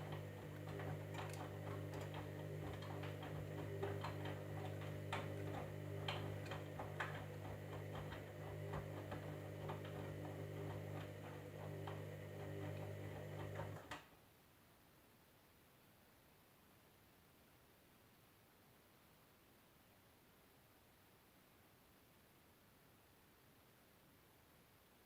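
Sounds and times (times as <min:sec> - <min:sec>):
washing machine motor hum: 0:00.0 - 0:14.0.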